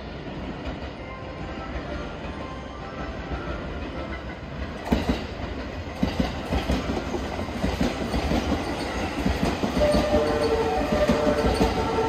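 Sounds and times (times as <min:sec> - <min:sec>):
train wheels clattering: 0:04.6 - 0:12.0
two-note train horn: 0:09.8 - 0:12.0.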